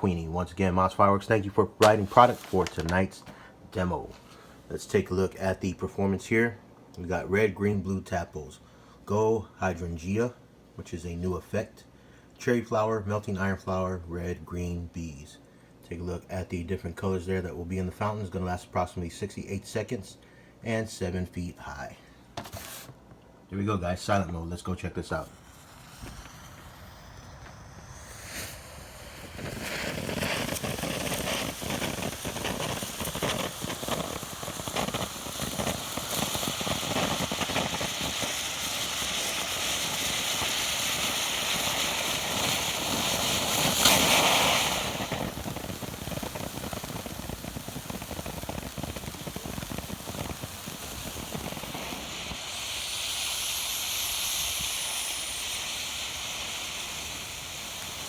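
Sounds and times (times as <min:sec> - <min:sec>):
fountain firework hissing: 0:00.0 - 0:03.2, 0:24.6 - 0:58.0
firework crackling: 0:00.0 - 0:04.3, 0:24.2 - 0:58.0.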